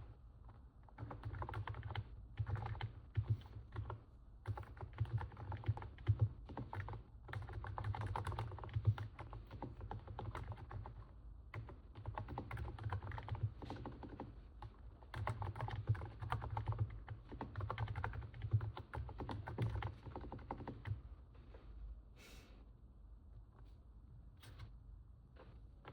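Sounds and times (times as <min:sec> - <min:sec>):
keyboard typing: 0:00.5 - 0:21.0.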